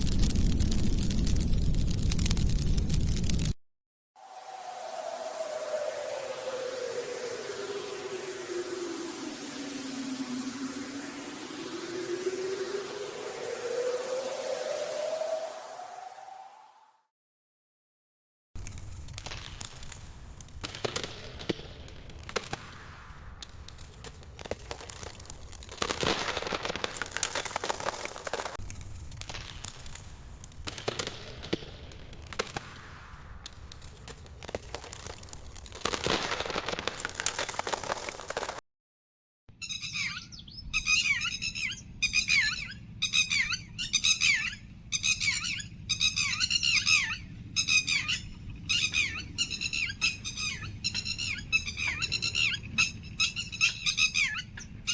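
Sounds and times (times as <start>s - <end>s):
fire crackling with sharp pops: 0.0s - 3.6s, 18.6s - 38.6s
bird warbling chirps: 39.6s - 54.9s.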